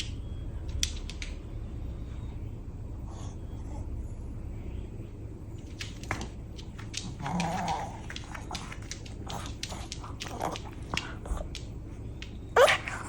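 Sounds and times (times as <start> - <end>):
small clicks and taps: 0.0 - 1.4, 5.6 - 12.5.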